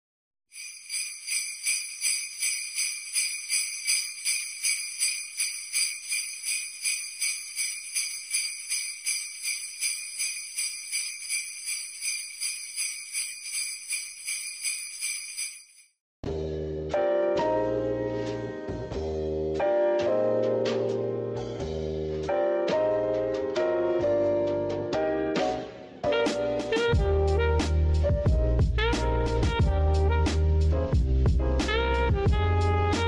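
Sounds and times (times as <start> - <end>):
jingle bells shaken: 0.6 - 16.0
piano music: 16.9 - 21.6, 22.2 - 30.2.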